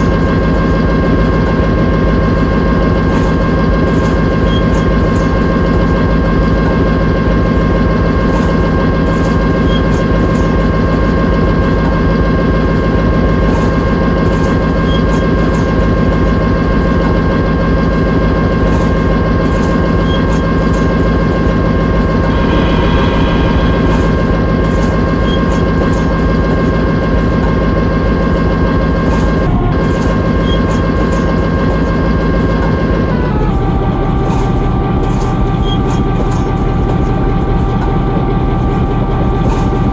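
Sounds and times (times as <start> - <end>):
high engine whine: 0.0 - 39.9
locomotive engine rumbling: 9.6 - 39.9.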